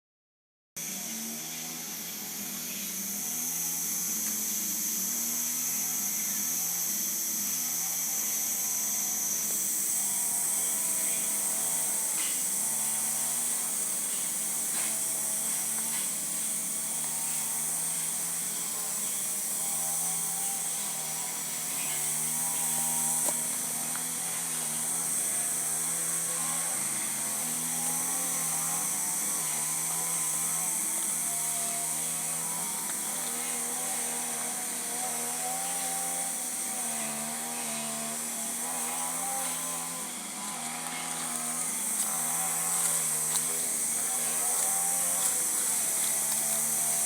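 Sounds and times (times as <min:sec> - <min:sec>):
insect chorus: 0:01.0 - 0:47.0.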